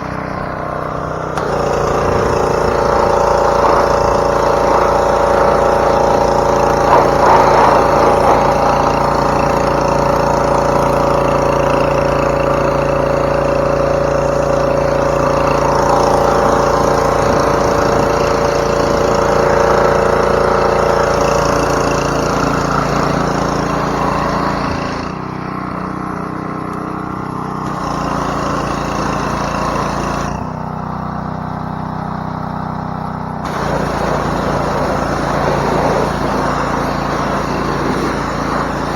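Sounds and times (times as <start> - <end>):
small gas engine running: 0.0 - 38.9
pressure washer spray hiss: 1.4 - 23.1, 33.4 - 38.9.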